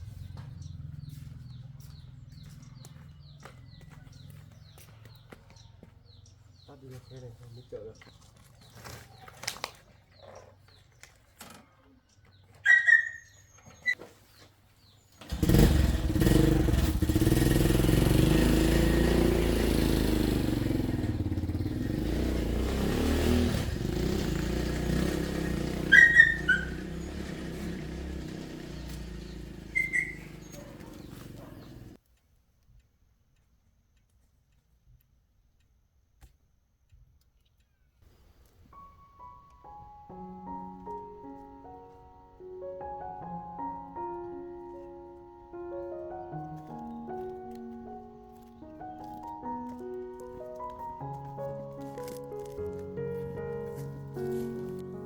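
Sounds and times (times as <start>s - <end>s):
vehicle engine running: 0.0s - 6.3s, 15.2s - 32.0s, 46.1s - 55.0s.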